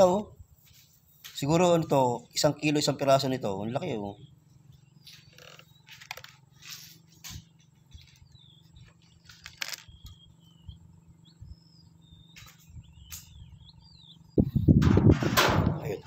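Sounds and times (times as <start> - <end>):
small birds chirping: 0.0 - 14.8
low steady hum: 0.0 - 16.0
short clicks and rustles: 5.2 - 7.4, 8.9 - 10.2.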